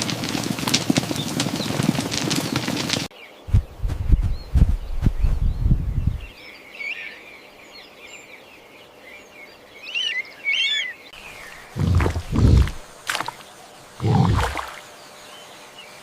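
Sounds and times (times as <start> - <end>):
bird chirping: 3.2 - 16.0
low thuds: 3.5 - 6.3, 11.7 - 13.3.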